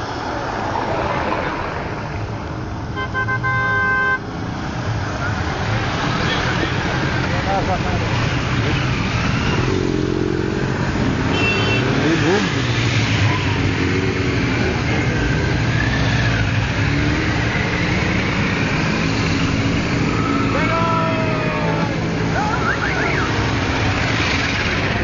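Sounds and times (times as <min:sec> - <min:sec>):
motorcycle engines running: 0:04.4 - 0:25.0.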